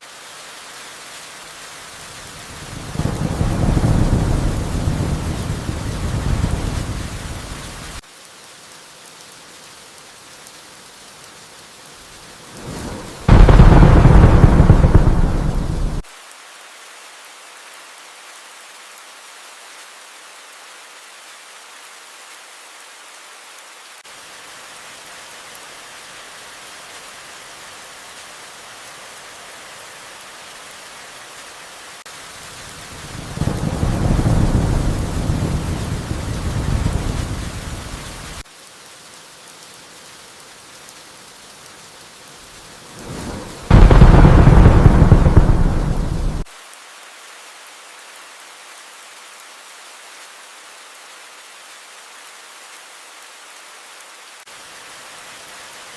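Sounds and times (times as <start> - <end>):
rain hiss: 0.0 - 55.9
thunder rumbling: 2.8 - 7.9, 12.6 - 16.0, 33.2 - 38.3, 43.0 - 46.5.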